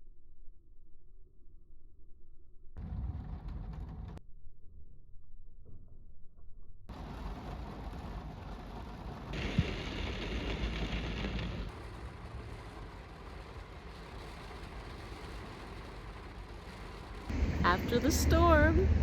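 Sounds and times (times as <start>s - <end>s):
low rumble of traffic: 6.9s - 19.0s.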